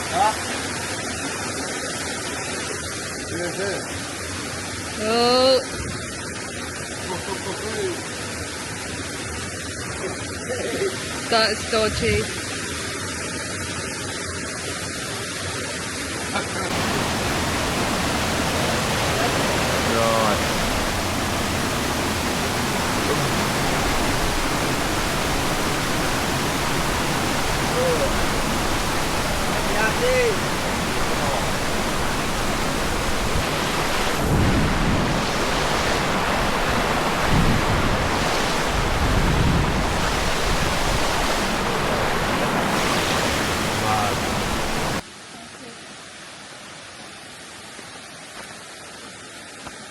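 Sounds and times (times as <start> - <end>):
waterfall rushing: 15.7 - 45.0
wind buffeting microphone: 20.5 - 45.0.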